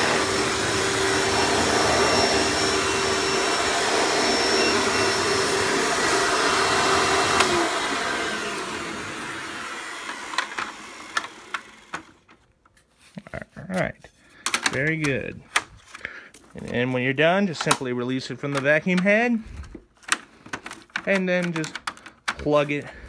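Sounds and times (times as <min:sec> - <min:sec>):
vacuum cleaner motor running: 0:00.0 - 0:12.3.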